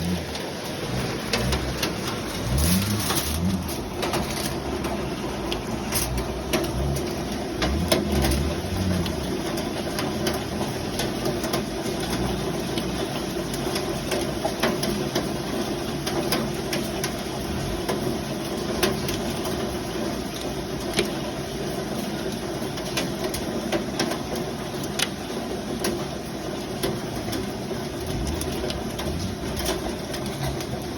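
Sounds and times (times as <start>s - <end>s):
low rumble: 0.0s - 10.9s
hailstones ticking on glass: 0.0s - 30.9s
rain pattering on a window: 0.0s - 30.9s.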